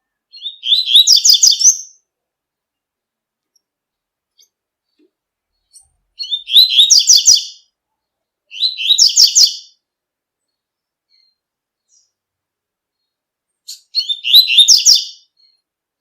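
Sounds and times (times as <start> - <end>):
bird singing high twittering notes: 0.3 - 2.0, 5.7 - 7.6, 8.5 - 9.8, 13.7 - 15.6.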